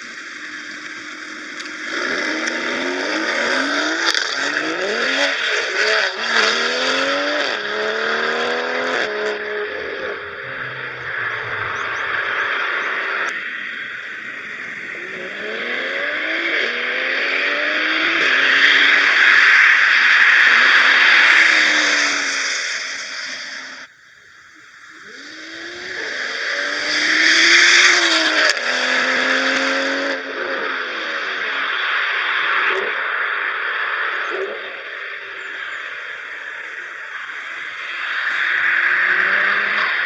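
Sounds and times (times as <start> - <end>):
car engine accelerating through gears: 0.0 - 40.0
wind noise: 9.7 - 16.4.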